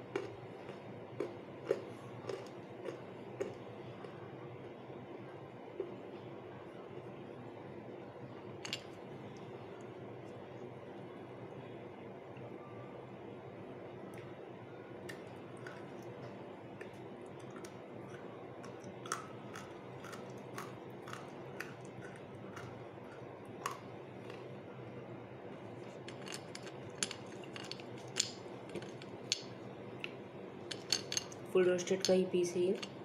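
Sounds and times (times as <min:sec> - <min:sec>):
person chewing stone: 0:00.0 - 0:04.2, 0:17.4 - 0:24.4
low steady hum: 0:00.0 - 0:33.0.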